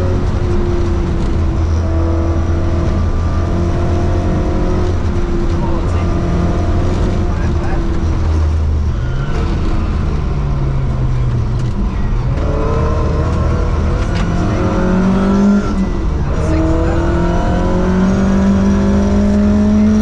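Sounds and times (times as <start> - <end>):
rally car engine pulling hard: 0.0 - 20.0
tyre and gravel road noise: 0.0 - 20.0.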